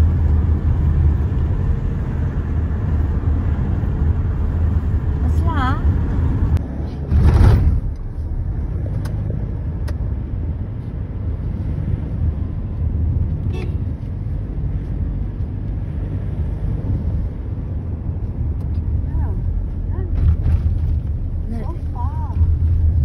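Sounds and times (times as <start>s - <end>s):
car engine and tyre rumble: 0.0s - 23.0s
loud thump: 7.0s - 8.1s.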